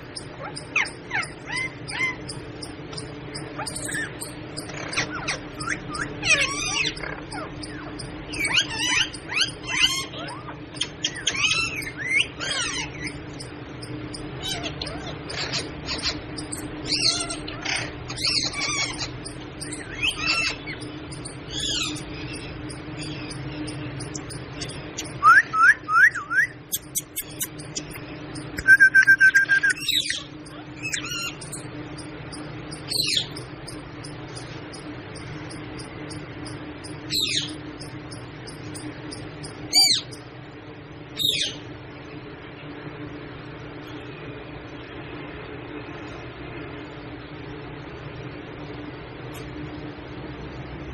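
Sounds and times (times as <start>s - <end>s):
steady low hum: 0.0s - 50.9s
parrot squawking: 0.2s - 13.2s, 13.8s - 28.0s, 28.6s - 40.2s.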